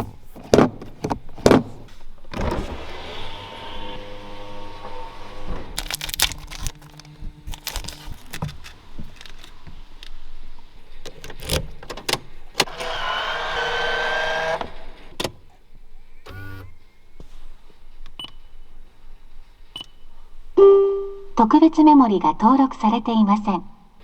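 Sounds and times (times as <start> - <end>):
sharp clicks and knocks from controls: 11.0 - 13.1, 14.4 - 15.5
small electric motor whine: 12.7 - 15.0.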